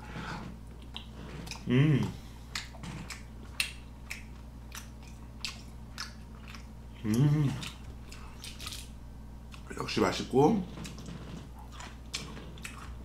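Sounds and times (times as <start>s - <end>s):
person chewing: 0.2s - 9.7s, 10.7s - 13.0s
person humming: 1.5s - 2.3s, 7.0s - 7.8s.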